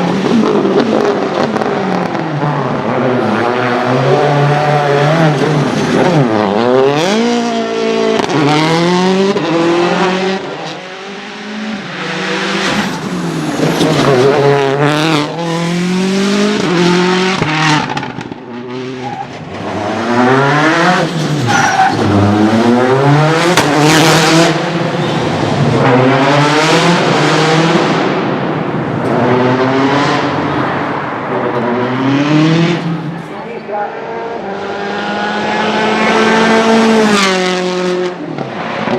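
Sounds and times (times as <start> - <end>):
rally car engine revving: 0.0 - 38.9.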